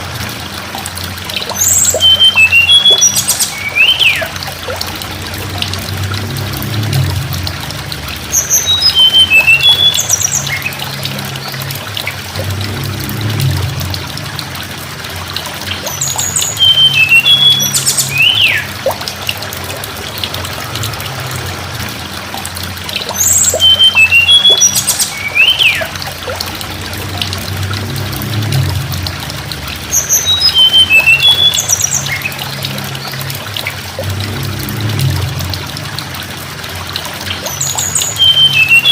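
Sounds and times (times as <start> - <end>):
low background hum: 0.0 - 38.9
trickle of running water: 0.0 - 38.9
songbird whistling: 1.5 - 4.3, 8.4 - 10.8, 15.9 - 19.0, 23.1 - 25.9, 29.9 - 32.4, 37.6 - 38.9.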